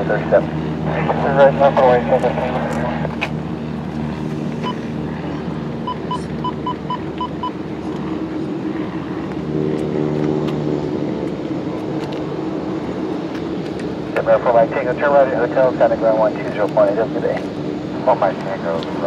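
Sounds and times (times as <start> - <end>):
airport and traffic engine rumble: 0.0 - 19.0
short electronic beeps: 5.9 - 7.6.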